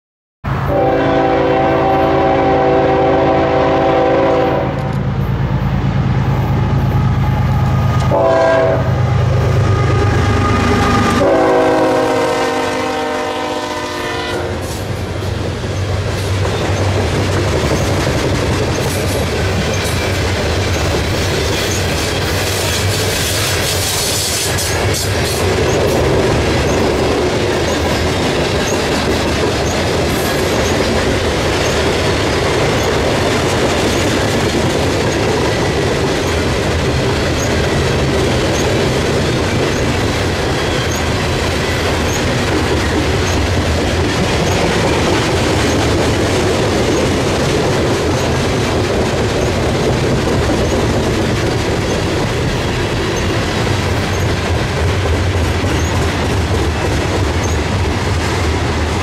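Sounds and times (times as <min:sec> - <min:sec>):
diesel locomotive engine rumbling: 0:00.4 - 0:59.0
locomotive air horn chord: 0:00.6 - 0:05.0, 0:07.6 - 0:14.8
wheels clattering on rail: 0:14.7 - 0:59.0.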